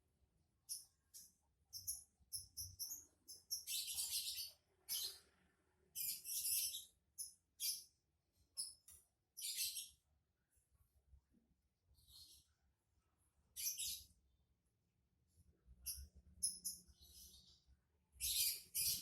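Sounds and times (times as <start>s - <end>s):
bird chattering chirps and trills: 18.2s - 19.0s.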